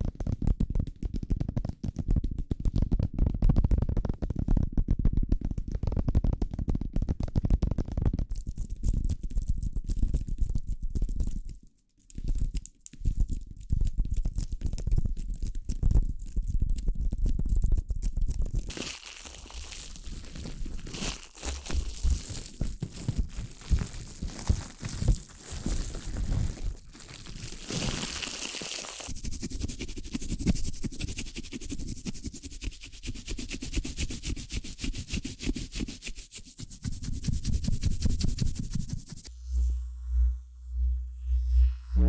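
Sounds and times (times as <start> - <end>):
crackling: 18.5 - 29.2
fast scratching strokes: 18.7 - 23.1, 27.4 - 39.3
rustling: 18.7 - 39.3.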